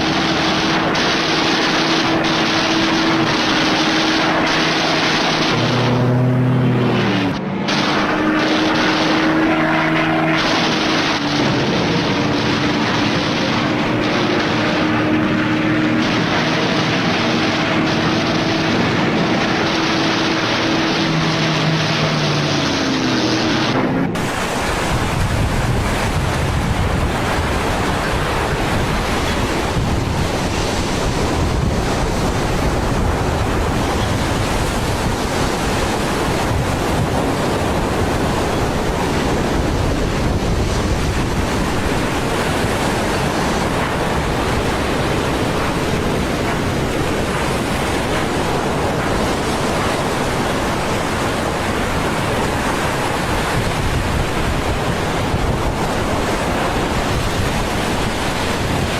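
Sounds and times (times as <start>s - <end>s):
steady loud rushing noise: 0.0s - 58.9s.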